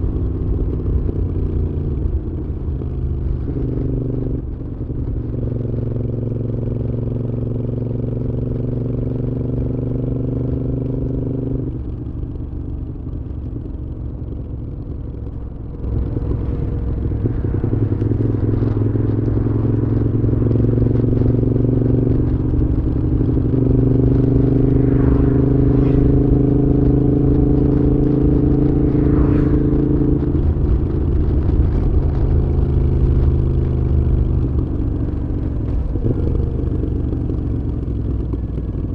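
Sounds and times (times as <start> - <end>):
motorcycle v-twin engine running: 0.0 - 24.5, 26.4 - 38.9.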